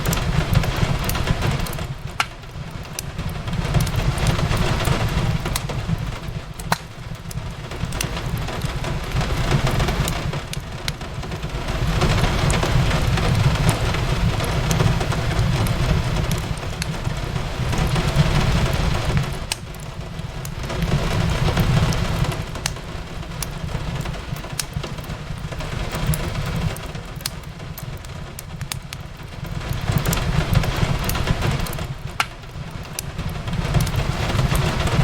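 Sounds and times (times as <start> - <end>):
steady rain: 0.0 - 35.0
wood fire crackling and popping: 0.0 - 35.0.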